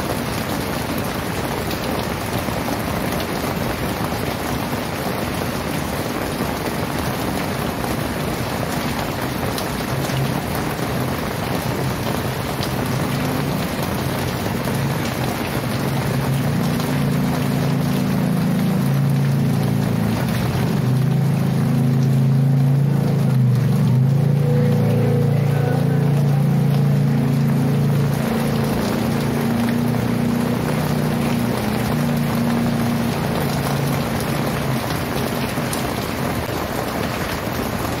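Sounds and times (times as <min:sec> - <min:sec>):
heavy rain pouring: 0:00.0 - 0:38.0
low engine-like hum: 0:16.3 - 0:35.5.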